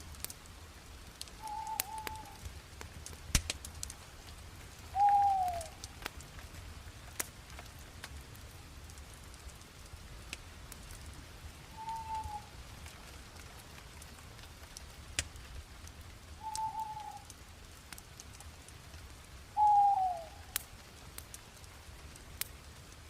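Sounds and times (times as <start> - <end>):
bonfire crackling and popping: 0.0 - 23.0
short whistle-like calls: 1.4 - 2.4, 5.0 - 5.7, 11.7 - 12.5, 16.4 - 17.2, 19.6 - 20.4.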